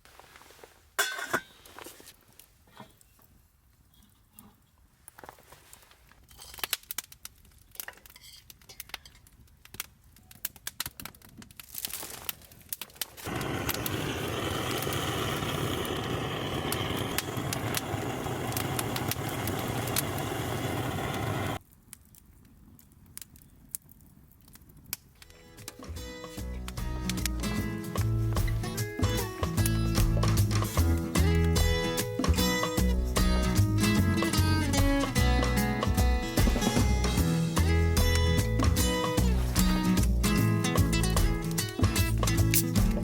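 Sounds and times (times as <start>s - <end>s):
wood fire crackling: 4.9s - 43.0s
fire popping: 6.2s - 43.0s
steady rushing noise: 13.3s - 21.6s.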